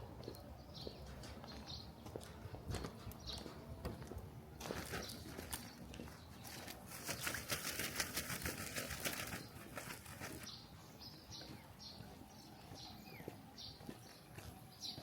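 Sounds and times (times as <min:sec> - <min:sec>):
small bird chirping: 0:04.8 - 0:15.0
rapid rustling crackle: 0:06.5 - 0:10.5.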